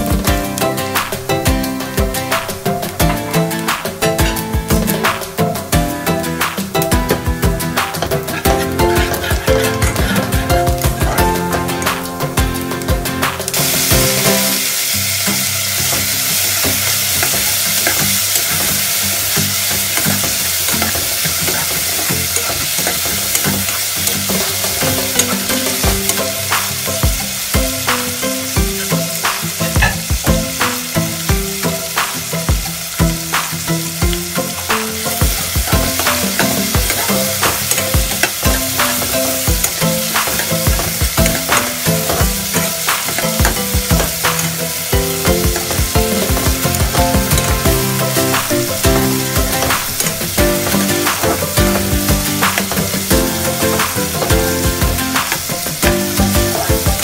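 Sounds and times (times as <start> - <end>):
tomatoes sizzling in hot oil: 0.0 - 57.0
metal ladle scraping and tapping pot: 6.8 - 12.0.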